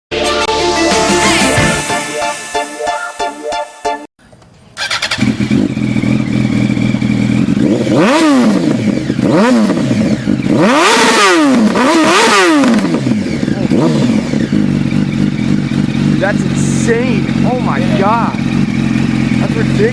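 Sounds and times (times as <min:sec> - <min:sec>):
motorcycle engine idling: 0:04.3 - 0:10.9, 0:12.8 - 0:19.9
motorcycle engine revving hard: 0:04.7 - 0:19.9.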